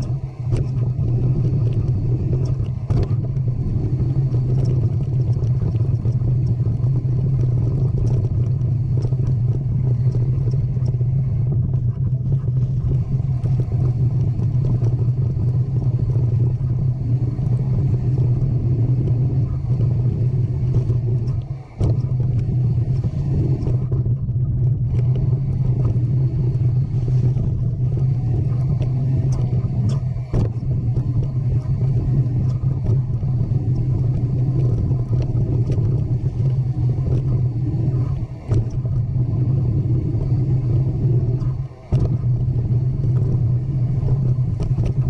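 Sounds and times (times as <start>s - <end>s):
low rumble: 0.0s - 45.0s.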